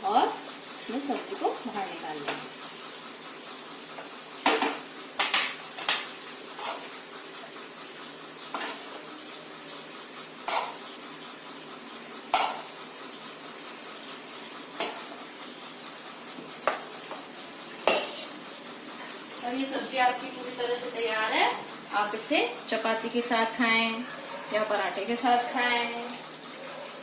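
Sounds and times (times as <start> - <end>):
metal spoon scraping pans: 4.4 - 7.0, 8.5 - 9.0, 10.4 - 10.8, 17.8 - 18.4.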